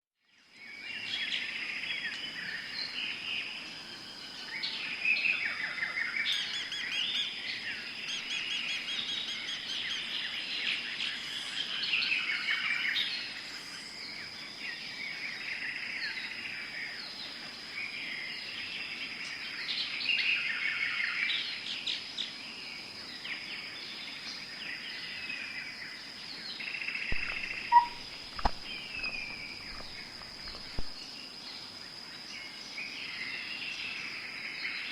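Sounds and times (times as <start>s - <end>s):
birds singing and calling: 0.3s - 34.9s
thin high-pitched tone: 27.1s - 28.0s
sharp clicks: 27.1s - 31.0s.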